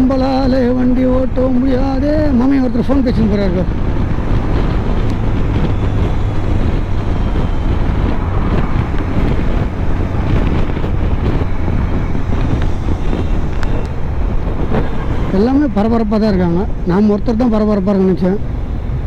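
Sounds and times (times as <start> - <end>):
vehicle road and engine rumble: 0.0 - 19.0
wind buffeting microphone: 0.0 - 19.0.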